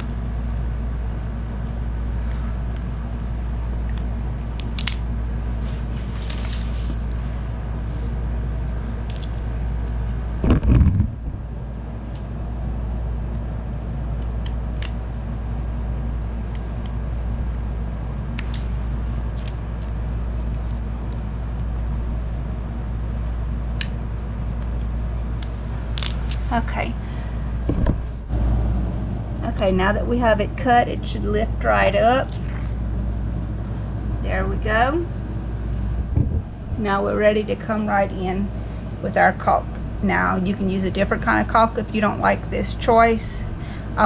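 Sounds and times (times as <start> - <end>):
steady low hum: 0.0 - 44.0
loud thump: 10.4 - 11.2, 27.7 - 28.1, 36.1 - 36.5.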